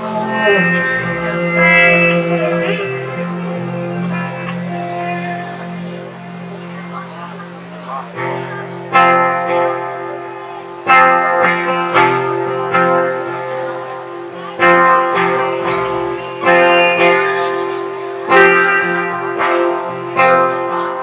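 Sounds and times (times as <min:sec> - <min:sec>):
guitar chords ringing: 0:00.0 - 0:21.0
low sustained notes: 0:00.0 - 0:21.0.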